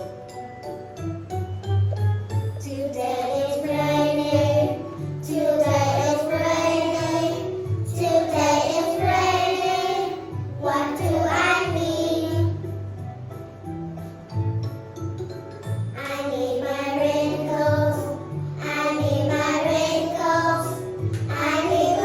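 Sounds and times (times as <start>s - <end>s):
child singing: 2.6s - 12.6s, 16.0s - 22.0s.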